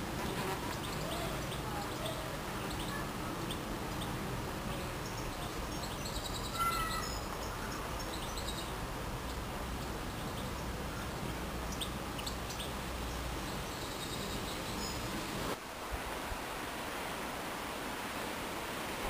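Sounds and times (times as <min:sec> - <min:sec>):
small birds chirping: 0:00.0 - 0:15.6
steady outdoor hiss: 0:00.0 - 0:19.0.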